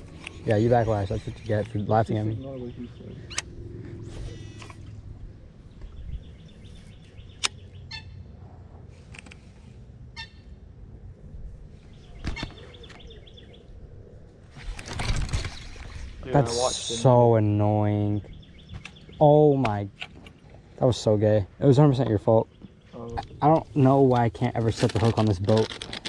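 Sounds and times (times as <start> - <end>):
birds chirping and trilling: 0.0 - 8.4, 9.4 - 25.3
low steady rumble: 0.0 - 25.6
sharp clicks: 7.3 - 7.6.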